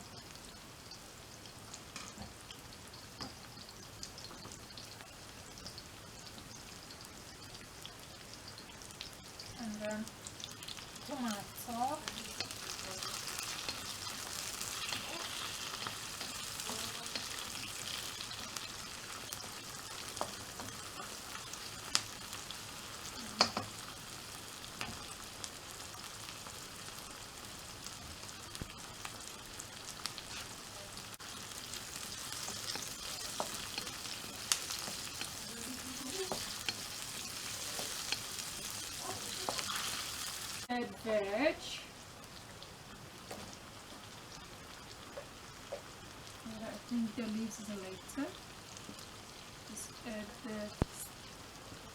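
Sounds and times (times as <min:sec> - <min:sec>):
food sizzling in frying pan: 0:00.0 - 0:51.9
spatula clicking against pan: 0:23.4 - 0:23.7.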